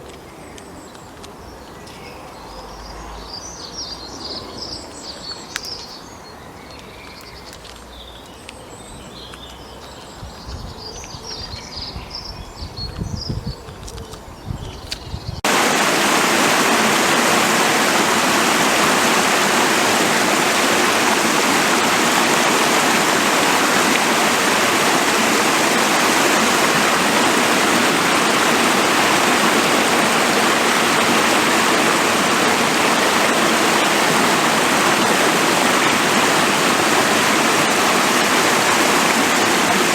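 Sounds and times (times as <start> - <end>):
fast-flowing stream rushing: 15.4 - 39.9.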